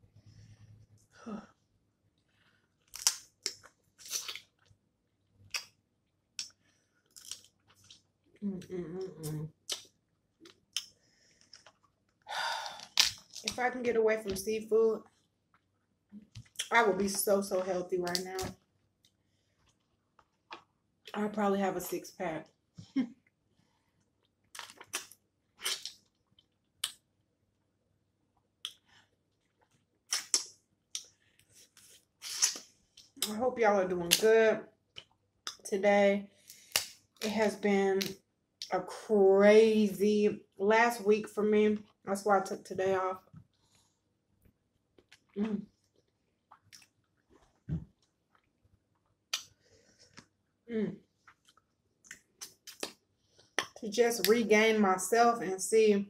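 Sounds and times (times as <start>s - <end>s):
crab legs cracking: 2.9s - 4.5s
crab legs crunching: 12.7s - 13.6s.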